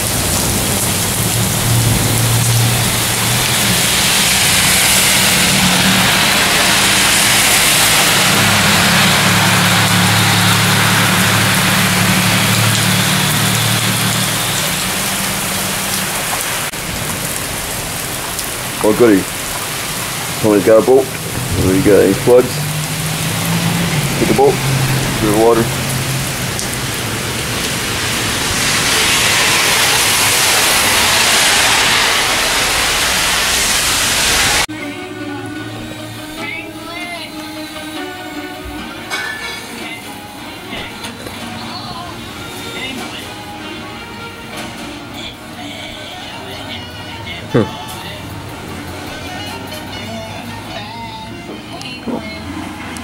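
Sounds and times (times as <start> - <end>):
heavy rain pouring: 0.0 - 53.0
low engine-like hum: 4.4 - 16.4.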